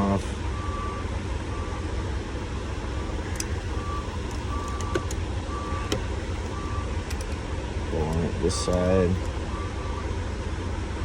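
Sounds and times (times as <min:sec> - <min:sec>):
low engine rumble: 0:00.0 - 0:11.0
small handling clicks: 0:03.3 - 0:03.6, 0:04.2 - 0:05.2, 0:07.0 - 0:07.4, 0:08.1 - 0:09.4.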